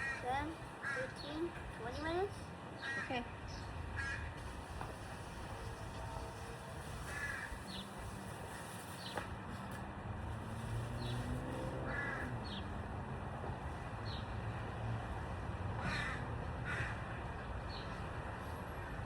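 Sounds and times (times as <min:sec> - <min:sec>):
bird cawing: 0:04.0 - 0:04.3, 0:07.1 - 0:07.8, 0:11.9 - 0:12.3, 0:15.8 - 0:17.0.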